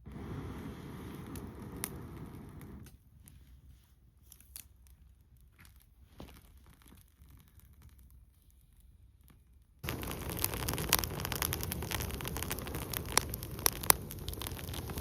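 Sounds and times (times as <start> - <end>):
campfire crackling and popping: 0.0 - 3.0, 9.8 - 15.0.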